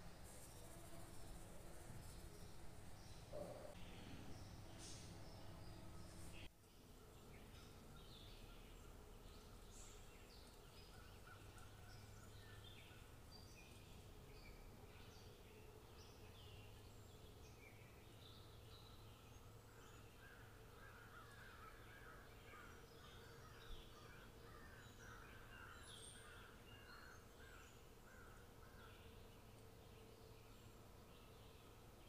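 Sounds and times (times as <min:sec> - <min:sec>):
faint birds chirping: 0:00.0 - 0:32.0.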